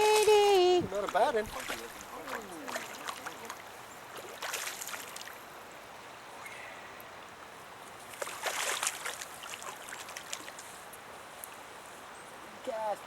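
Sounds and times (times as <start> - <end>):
sharp splashes and clicks: 0.0 - 5.4, 8.0 - 11.6
creek water running: 0.0 - 13.0.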